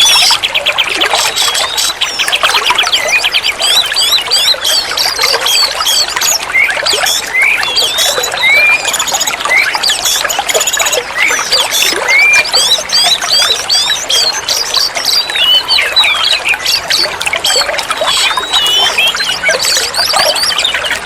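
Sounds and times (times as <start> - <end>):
bird singing whistled song: 0.0 - 21.0.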